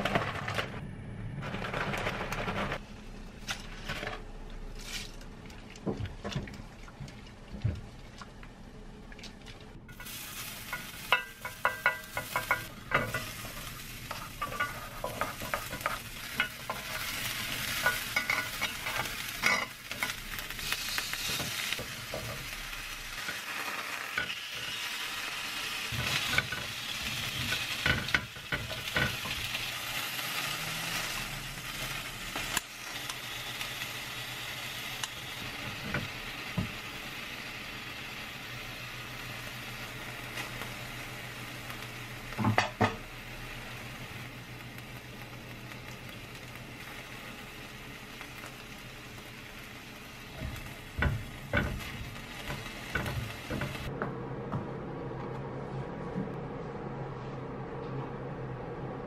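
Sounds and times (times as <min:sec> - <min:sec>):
food sizzling in a pan: 0:09.9 - 0:53.9
utensil tapping on pan: 0:10.7 - 0:13.2.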